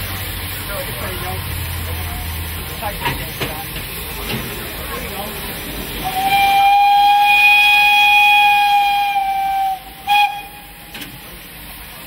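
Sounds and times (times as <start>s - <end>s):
steam locomotive whistle: 6.0s - 11.0s.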